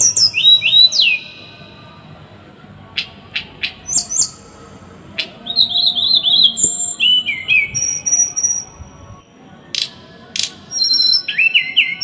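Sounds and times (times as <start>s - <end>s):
small songbird singing: 0.0s - 2.0s, 2.9s - 12.0s.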